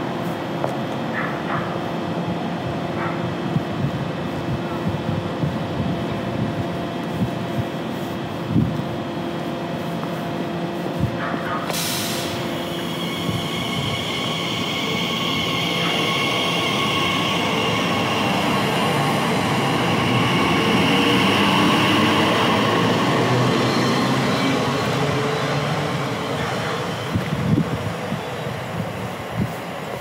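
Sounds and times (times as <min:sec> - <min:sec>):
train running past: 0:00.0 - 0:30.0
short hiss: 0:11.7 - 0:12.4.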